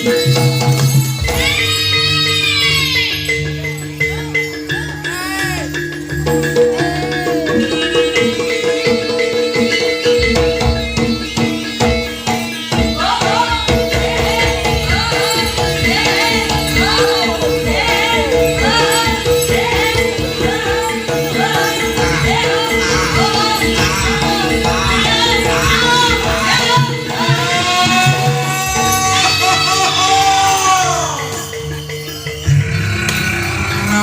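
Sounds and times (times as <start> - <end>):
drums: 0.0 - 34.0
high melody line: 0.0 - 34.0
jingling percussion: 0.0 - 34.0.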